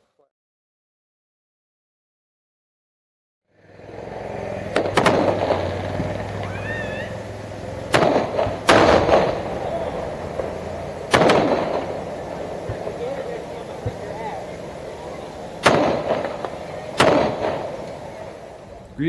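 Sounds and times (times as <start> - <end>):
fireworks bangs: 3.6 - 19.0.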